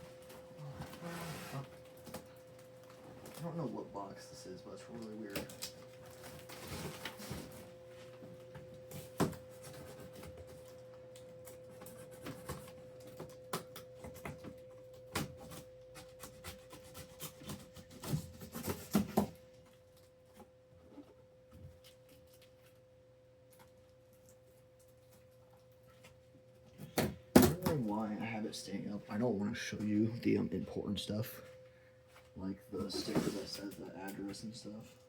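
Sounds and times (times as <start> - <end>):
packing tape rustling: 5.0 - 7.7.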